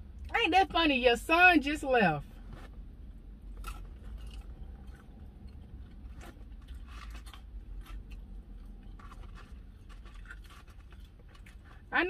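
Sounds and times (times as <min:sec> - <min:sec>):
low steady hum: 0:00.0 - 0:12.0
person chewing crunchy food: 0:03.4 - 0:11.9.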